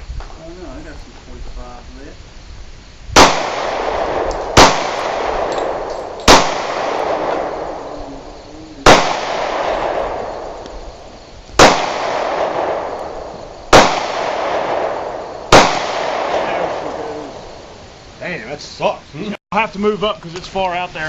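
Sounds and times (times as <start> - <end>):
gunshots with long echo: 3.2 - 17.8.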